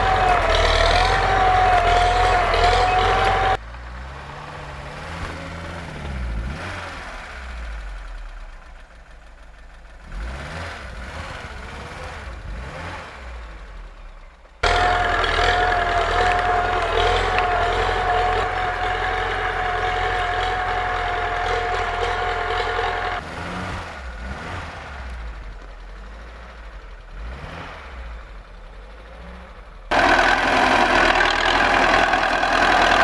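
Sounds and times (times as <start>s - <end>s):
vehicle engine running with whine: 0.0s - 33.0s.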